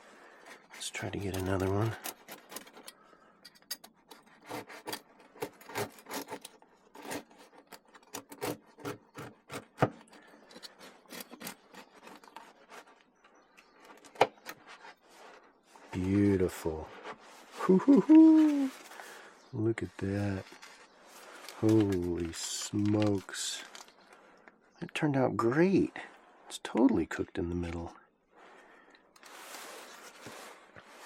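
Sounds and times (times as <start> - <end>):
knife sawing through crusty bread: 4.1 - 12.9.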